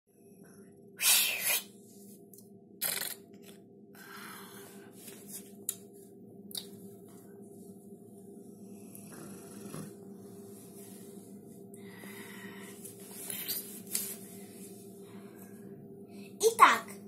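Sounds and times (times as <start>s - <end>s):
low hum: 0.1s - 17.0s
rustling and handling noise: 4.7s - 6.2s, 12.6s - 15.6s.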